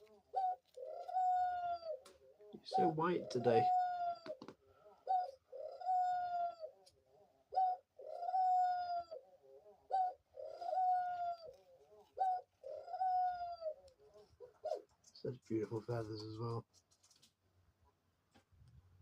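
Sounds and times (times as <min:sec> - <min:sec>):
dove cooing: 0:00.0 - 0:14.9.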